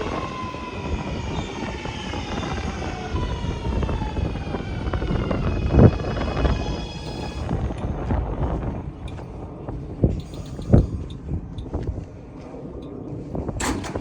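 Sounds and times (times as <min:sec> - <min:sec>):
subway train rumbling: 0:00.0 - 0:14.0
wheel thumps: 0:13.6 - 0:14.0.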